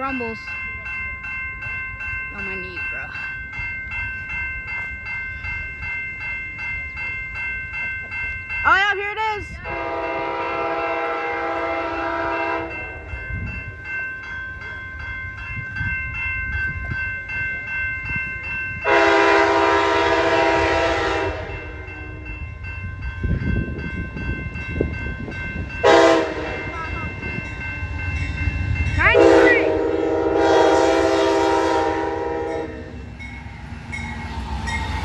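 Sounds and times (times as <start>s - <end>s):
train rumbling: 0.0s - 35.0s
locomotive horn blasts: 9.6s - 12.8s, 18.8s - 21.6s, 25.8s - 26.7s, 29.1s - 33.0s.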